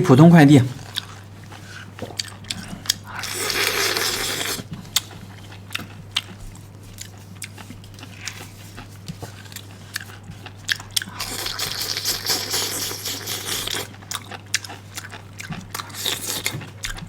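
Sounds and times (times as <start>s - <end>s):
chewing and crunching: 0.8s - 17.0s.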